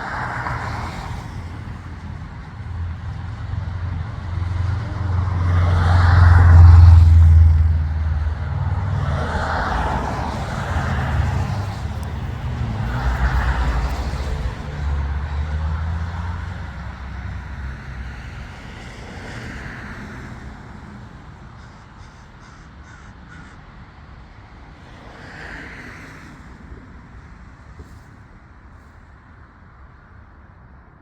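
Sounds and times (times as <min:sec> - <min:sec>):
low vehicle rumble: 0:00.0 - 0:19.0
flock of crows cawing: 0:21.6 - 0:23.8.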